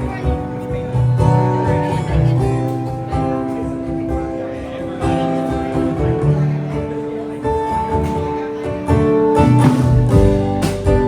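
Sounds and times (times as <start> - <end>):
strummed acoustic guitar: 0.0 - 11.0
band playing song: 7.9 - 11.0.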